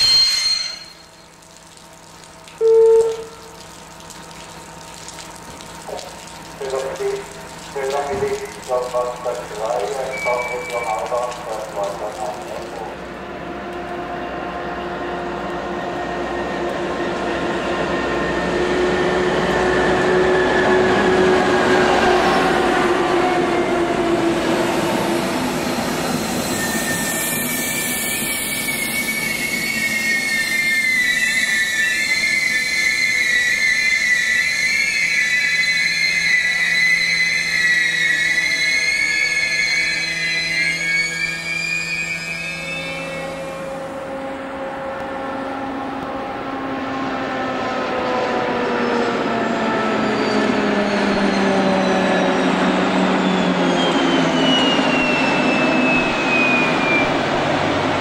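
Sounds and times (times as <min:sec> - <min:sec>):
train wheels squealing: 0:00.0 - 0:01.3, 0:24.6 - 0:44.0, 0:48.9 - 0:57.6
diesel locomotive passing: 0:05.8 - 0:58.0.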